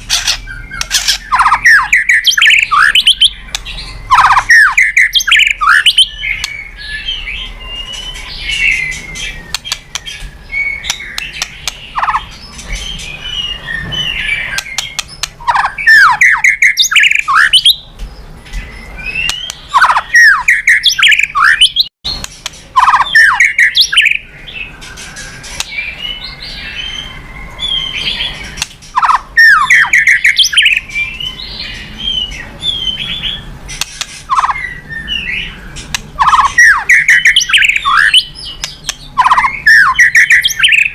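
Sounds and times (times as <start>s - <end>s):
bird singing whistled song: 0.1s - 33.5s, 34.3s - 40.9s
rapid sharp bird clicks: 2.4s - 4.4s, 9.5s - 10.2s, 10.8s - 12.2s, 14.6s - 15.7s, 33.7s - 34.6s, 35.8s - 36.6s, 38.6s - 39.5s.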